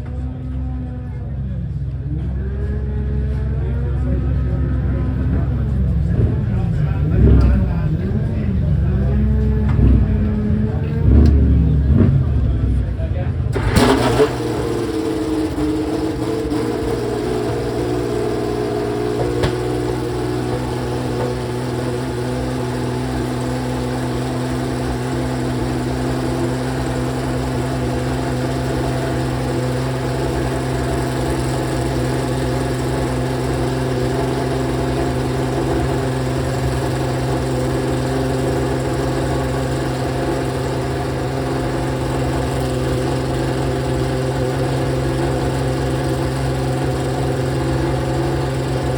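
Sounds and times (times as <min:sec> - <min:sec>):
race car engine idling: 0:00.0 - 0:48.9.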